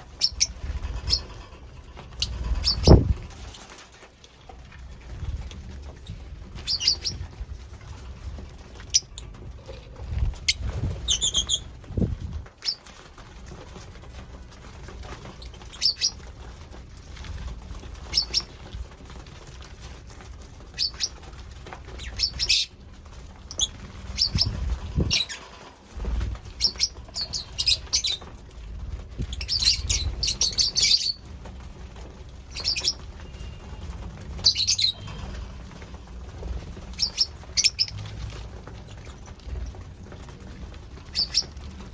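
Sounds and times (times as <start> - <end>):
lovebirds chirping: 0.2 - 1.3, 2.1 - 3.1, 6.0 - 7.2, 10.4 - 11.7, 23.5 - 25.5, 26.6 - 28.2, 29.2 - 31.2, 32.5 - 33.7, 34.4 - 35.4, 37.0 - 38.0, 41.1 - 41.5.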